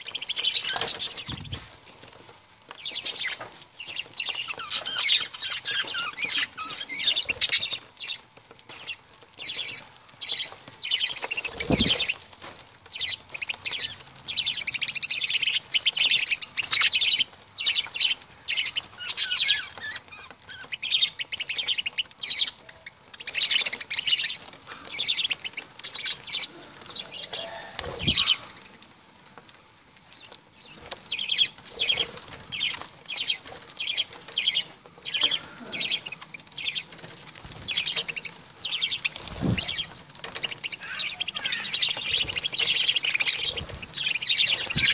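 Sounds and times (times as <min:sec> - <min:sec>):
lovebirds chattering: 0:00.0 - 0:44.9.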